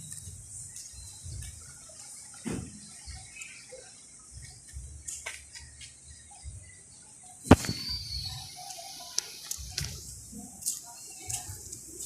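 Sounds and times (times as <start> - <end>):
sharp knock: 7.5 - 8.0.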